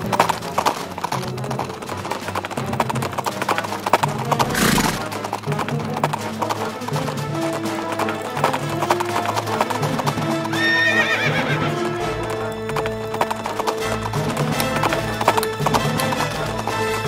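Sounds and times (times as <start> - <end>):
dramatic music: 0.0 - 17.0
horses hooves galloping: 0.0 - 17.0
horse whinnying: 4.2 - 5.1, 10.5 - 12.0.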